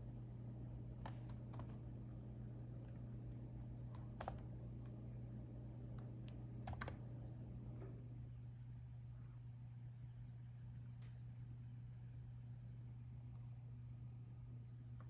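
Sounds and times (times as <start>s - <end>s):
steady low hum: 0.0s - 15.0s
laptop keyboard typing: 1.0s - 1.8s, 3.9s - 4.5s, 6.6s - 7.0s.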